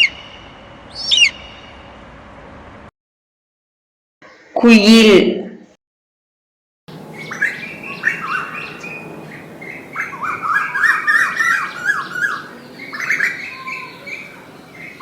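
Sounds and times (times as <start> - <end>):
koel calling: 0.0 - 0.4, 1.0 - 1.6, 6.9 - 15.0.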